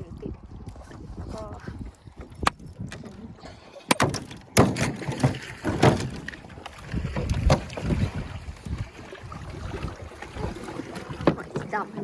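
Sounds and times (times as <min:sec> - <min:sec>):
water splashing around boat: 0:00.0 - 0:12.0
wind buffeting microphone: 0:00.0 - 0:12.0
sharp knocks: 0:03.9 - 0:06.3.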